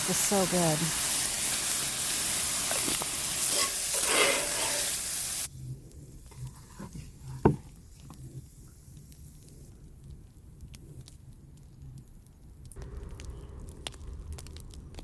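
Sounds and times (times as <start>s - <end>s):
beef sizzling in a pan: 0.0s - 5.6s.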